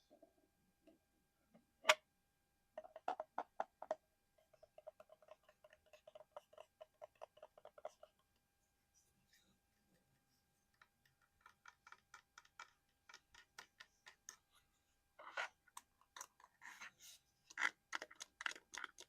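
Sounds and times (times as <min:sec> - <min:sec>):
fingertips tapping hard object: 0:02.8 - 0:08.2, 0:10.8 - 0:14.4.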